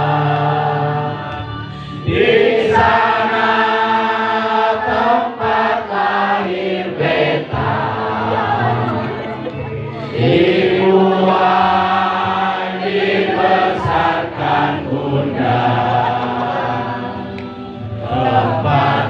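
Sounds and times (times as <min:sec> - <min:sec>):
group singing in unison: 0:00.0 - 0:19.0.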